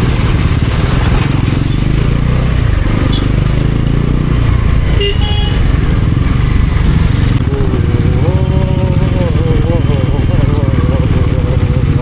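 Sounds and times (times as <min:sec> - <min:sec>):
motorcycle engine running: 0:00.0 - 0:12.0
road rumble: 0:00.0 - 0:12.0.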